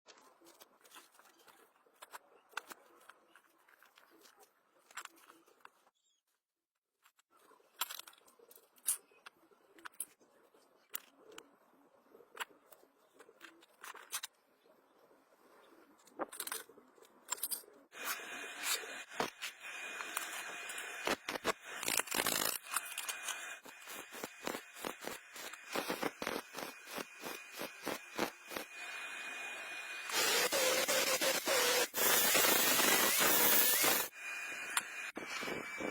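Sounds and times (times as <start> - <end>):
welding arc crackling: 18.8 - 29.1, 30.0 - 34.1.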